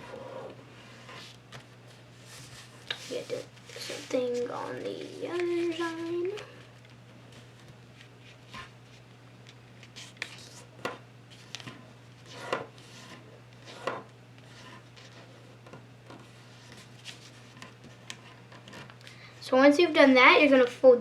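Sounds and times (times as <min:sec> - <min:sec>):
low steady hum: 0:00.0 - 0:21.0
paper being folded and creased: 0:16.2 - 0:19.0.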